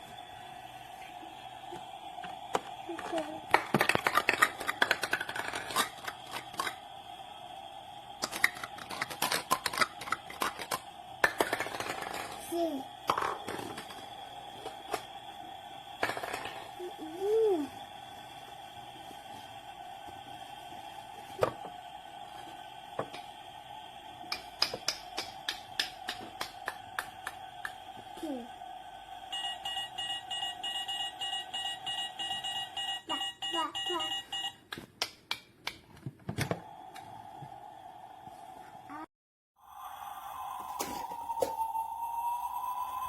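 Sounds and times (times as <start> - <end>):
faint steady hum: 0.0 - 34.7
plastic toy pieces clicking: 3.6 - 6.8, 8.2 - 12.4
faint steady tone: 28.5 - 34.6.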